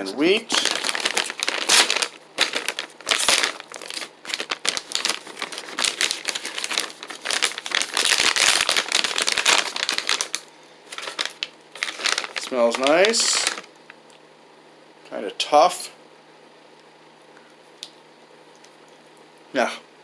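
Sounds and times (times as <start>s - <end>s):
plastic packaging crinkling: 0.4s - 14.0s.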